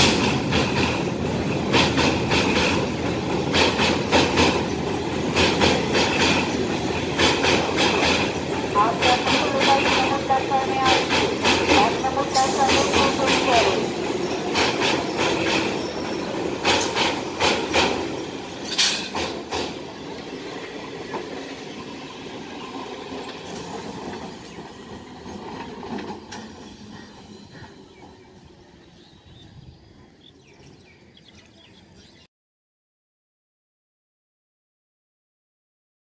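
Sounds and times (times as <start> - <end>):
train wheels clattering on rails: 0.0 - 28.2.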